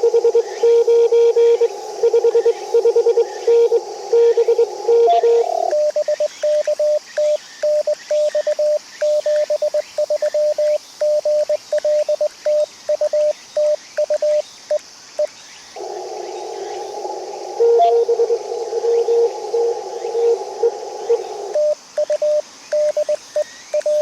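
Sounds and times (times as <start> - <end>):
receiver hiss: 0.7 - 7.0, 15.8 - 24.0.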